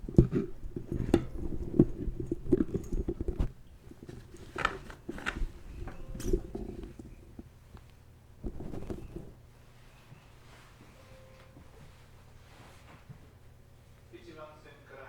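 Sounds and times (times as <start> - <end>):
microphone crackling and rustling: 0.0 - 13.8.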